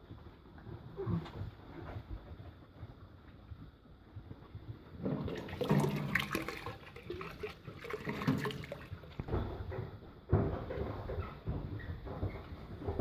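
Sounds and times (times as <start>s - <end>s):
water sloshing and splashing: 5.0s - 9.5s.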